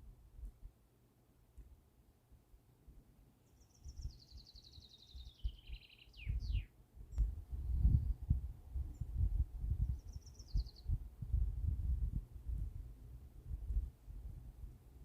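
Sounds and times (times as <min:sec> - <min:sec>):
songbird trilling: 0:03.5 - 0:06.7, 0:09.8 - 0:11.0.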